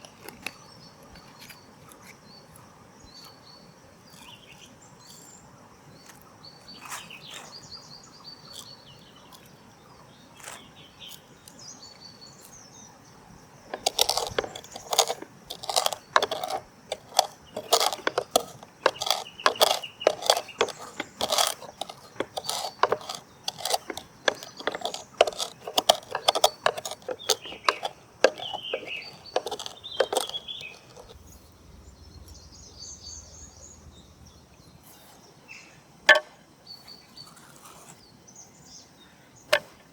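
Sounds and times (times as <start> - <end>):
birds chirping: 13.6 - 37.3
sharp clicks and knocks: 13.7 - 31.4, 36.1 - 36.3.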